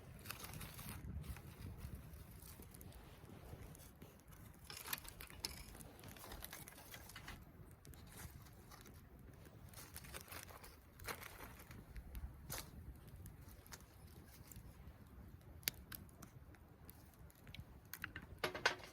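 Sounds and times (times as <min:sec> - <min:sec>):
rustling and crinkling: 0:00.0 - 0:18.9
small clicks and taps: 0:15.4 - 0:18.9.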